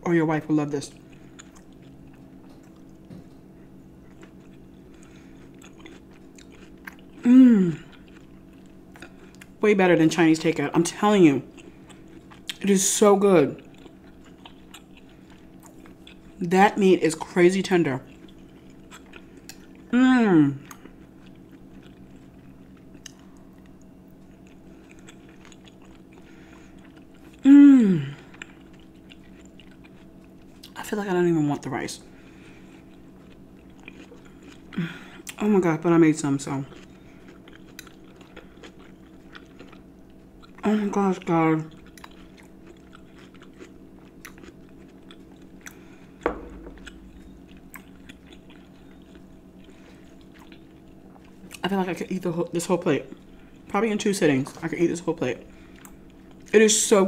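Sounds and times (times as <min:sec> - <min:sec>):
low steady hum: 0:00.0 - 0:57.0
soft mouth clicks chewing: 0:00.9 - 0:03.4, 0:04.1 - 0:07.2, 0:07.8 - 0:09.6, 0:13.6 - 0:16.4, 0:18.0 - 0:19.9, 0:20.6 - 0:27.4, 0:28.3 - 0:30.8, 0:32.7 - 0:35.4, 0:36.7 - 0:40.6, 0:41.6 - 0:51.6, 0:55.7 - 0:56.5.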